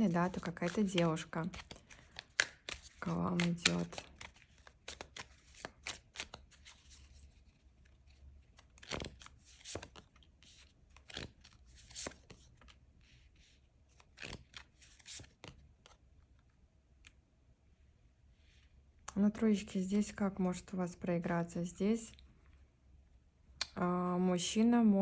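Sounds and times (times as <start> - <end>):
cards shuffling and snapping: 0.0 - 12.8, 13.9 - 16.0.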